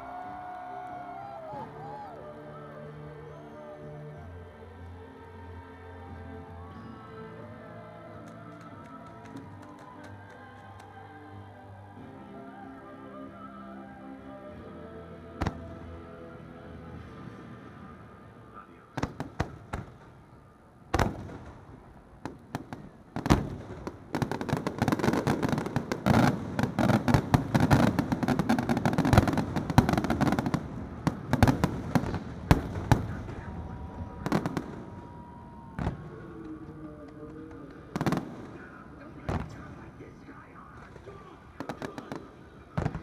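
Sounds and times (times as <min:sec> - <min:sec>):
rapid firework bangs and crackling: 0:19.0 - 0:20.2, 0:20.9 - 0:36.2, 0:37.2 - 0:43.0.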